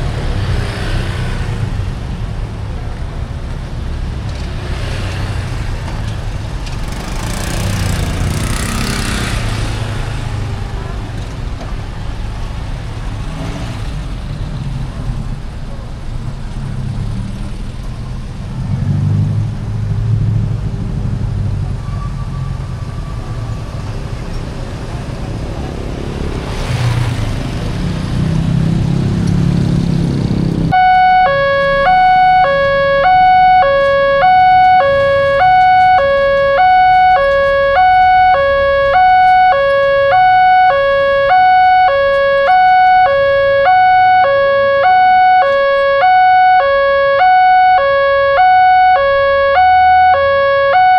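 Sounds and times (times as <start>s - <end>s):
road traffic rumbling: 0.0s - 50.9s
crossing warning alarm: 6.8s - 9.6s, 30.7s - 50.9s.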